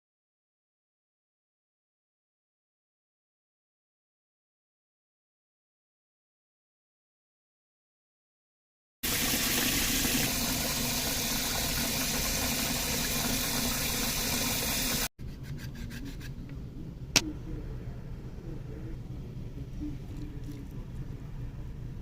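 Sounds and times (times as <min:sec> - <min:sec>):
water running from a tap: 0:09.0 - 0:15.1.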